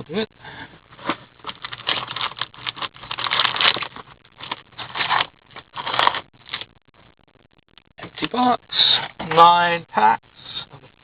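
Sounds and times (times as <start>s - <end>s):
foil wrappers crinkling: 0.9s - 6.7s.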